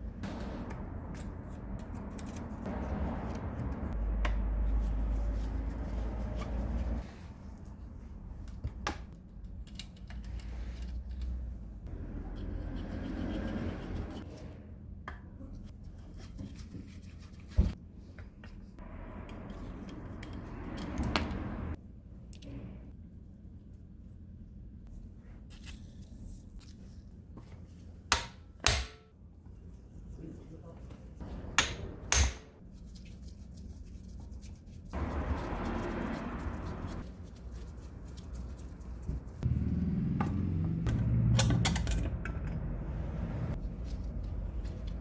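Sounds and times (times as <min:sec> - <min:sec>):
hands scraping and rustling metal parts: 0:00.2 - 0:04.0, 0:09.3 - 0:11.6, 0:43.5 - 0:45.0.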